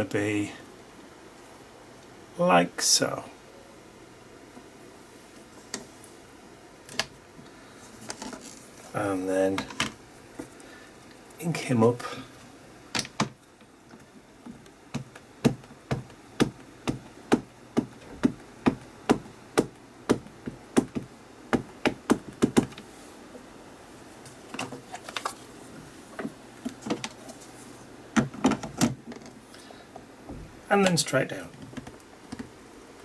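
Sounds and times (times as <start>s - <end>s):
ink pad tapping on stamp: 14.9s - 22.8s.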